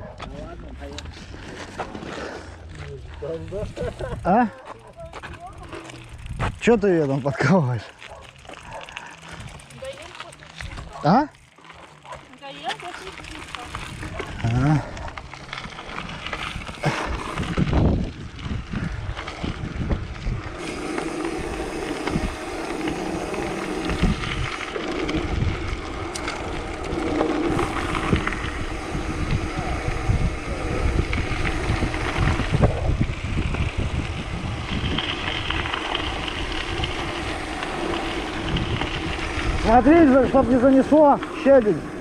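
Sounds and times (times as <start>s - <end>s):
bike tyres rolling on gravel: 0.0s - 42.0s
wind buffeting microphone: 3.3s - 6.9s, 12.8s - 42.0s.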